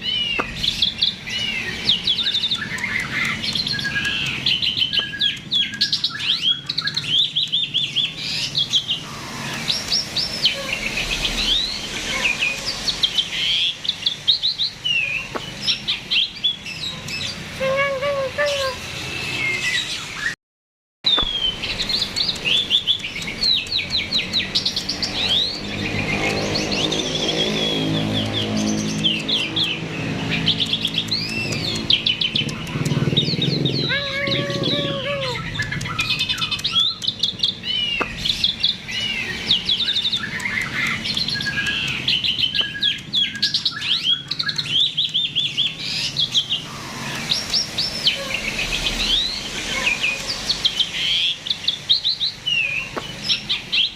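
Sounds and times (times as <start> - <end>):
starling song: 30.8 - 36.7.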